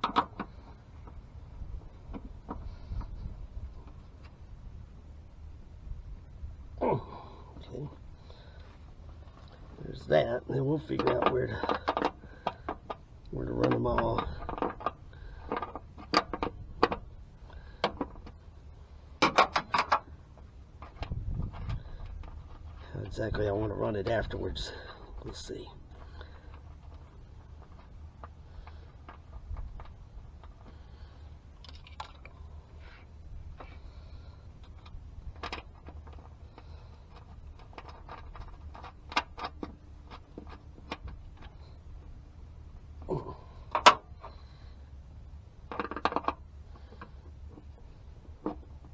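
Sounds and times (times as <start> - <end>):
low wind rumble: 0.0 - 45.8
wind rumble on microphone: 1.0 - 8.3, 20.8 - 25.3, 29.3 - 30.3
parts clicking and tapping: 10.9 - 13.0, 45.6 - 48.9.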